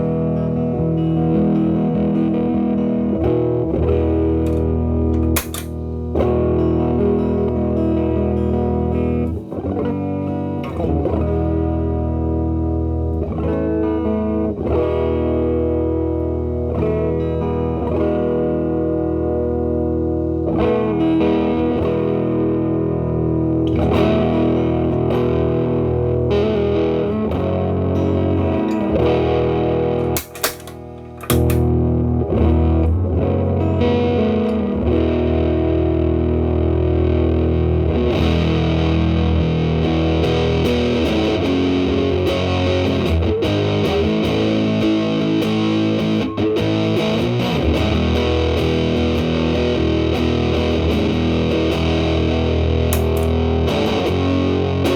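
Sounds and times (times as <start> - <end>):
fuzz electric guitar: 0.0 - 54.9
clicks: 4.5 - 5.8, 30.0 - 31.7, 52.9 - 53.4.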